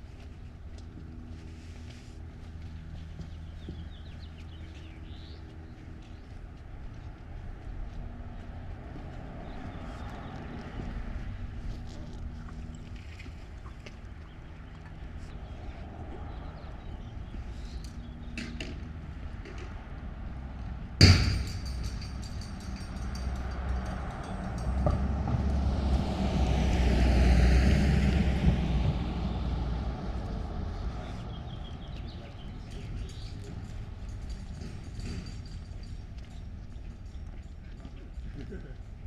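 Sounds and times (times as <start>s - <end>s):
sharp metallic clack: 21.0s - 25.5s
car driving past: 23.1s - 32.0s.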